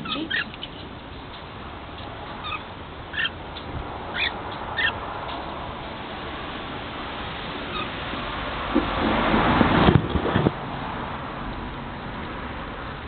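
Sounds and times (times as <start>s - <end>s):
budgerigars chirping: 0.0s - 1.3s, 2.3s - 3.4s, 4.1s - 5.0s, 7.7s - 7.9s.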